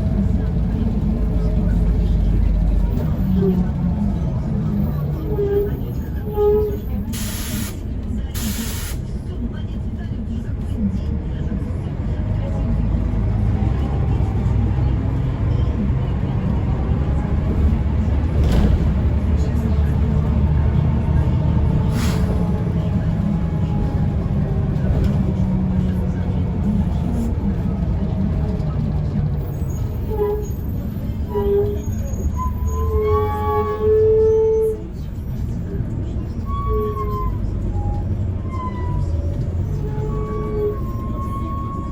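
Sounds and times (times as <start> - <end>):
bus engine drone: 0.0 - 41.9
road rumble: 0.0 - 41.9
bus brakes squealing: 4.7 - 9.1, 21.6 - 24.2, 28.6 - 41.9.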